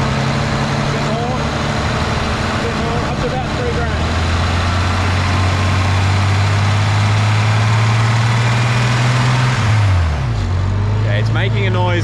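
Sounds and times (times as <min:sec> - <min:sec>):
engine ticking: 0:00.0 - 0:10.5
car engine revving steadily: 0:00.0 - 0:12.0.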